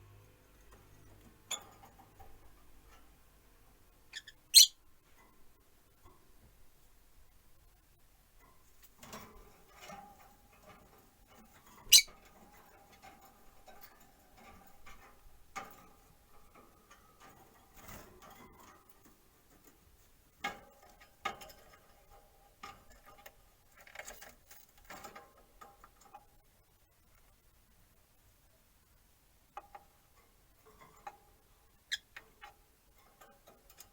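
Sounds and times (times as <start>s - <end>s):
birds clicking and scratching: 0.4s - 6.4s, 8.4s - 27.3s, 29.5s - 33.9s
short high bird chirp: 4.2s - 4.8s.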